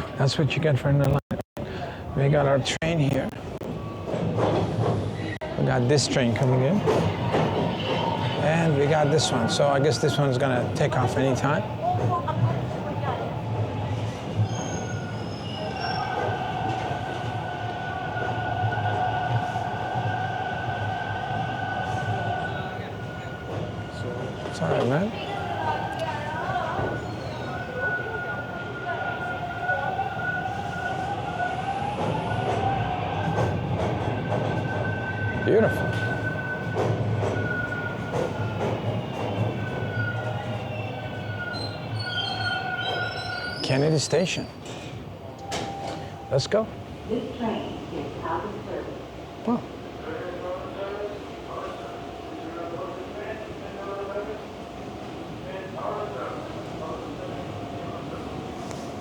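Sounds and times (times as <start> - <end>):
subway train rumble: 0.0 - 59.0
high wheel squeal: 6.4 - 11.6, 14.4 - 44.9.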